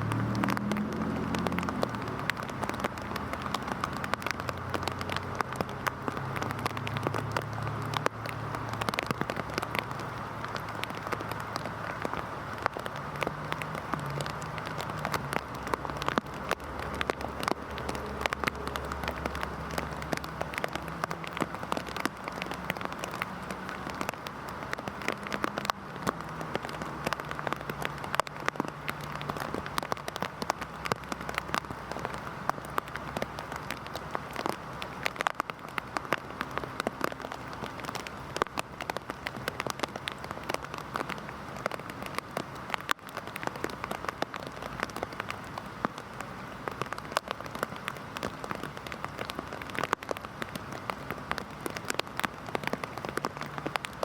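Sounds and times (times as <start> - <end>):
heavy rain falling: 0.0 - 54.0
raindrops striking hard surface: 0.0 - 54.0.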